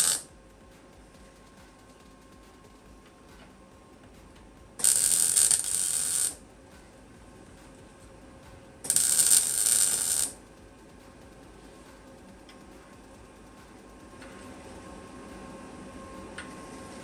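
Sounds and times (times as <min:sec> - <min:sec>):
welding crackling: 0:00.0 - 0:00.3, 0:04.8 - 0:06.4, 0:08.8 - 0:10.4.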